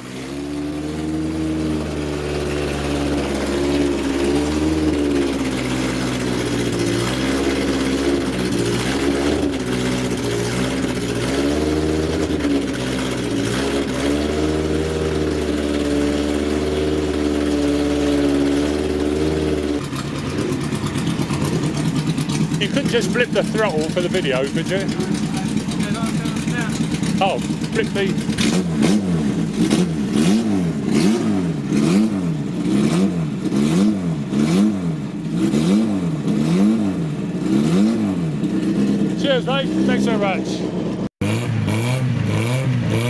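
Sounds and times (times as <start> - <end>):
racing car engine fast idle: 0.0 - 33.5
different engine sound: 0.0 - 43.0
engine throttle blips: 0.0 - 43.0.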